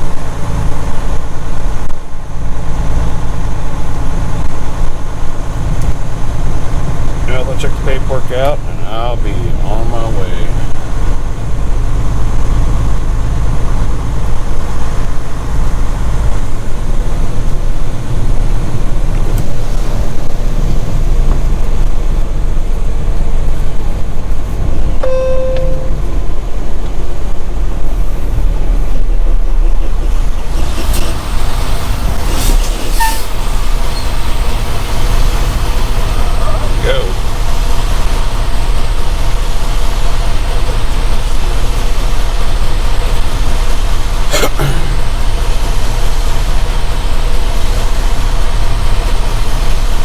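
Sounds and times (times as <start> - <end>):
diesel truck engine running: 0.0 - 50.0
short beep: 25.0 - 26.2.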